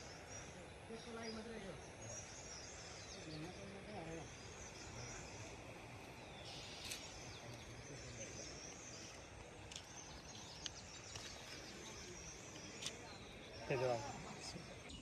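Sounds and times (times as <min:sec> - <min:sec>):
faint bird chirps: 0:00.0 - 0:15.0
faint outdoor background noise: 0:00.0 - 0:15.0.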